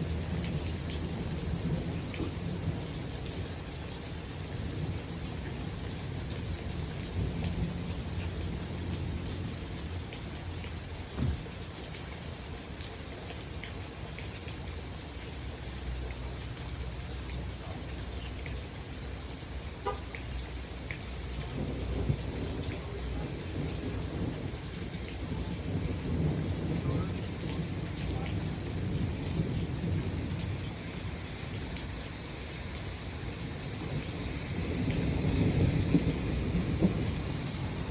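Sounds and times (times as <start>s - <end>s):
rain falling: 0.0s - 37.9s
water drips: 7.5s - 22.9s
thunder rolling: 21.4s - 30.9s, 33.6s - 37.9s.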